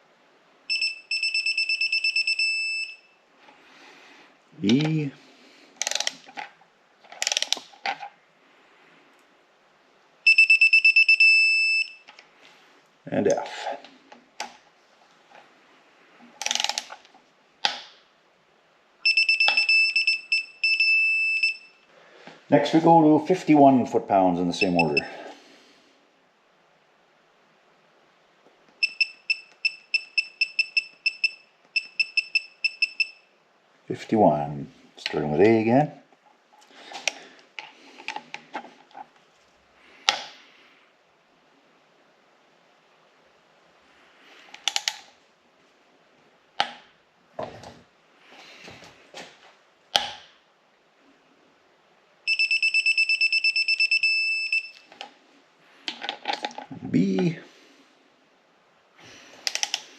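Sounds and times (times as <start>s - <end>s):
torque wrench high beep: 0.7s - 3.1s, 10.3s - 12.0s, 19.0s - 21.8s, 24.6s - 25.1s, 28.8s - 33.2s, 52.3s - 54.9s
torque wrench ratcheting clicks: 5.8s - 6.2s, 7.2s - 7.6s, 16.4s - 16.9s.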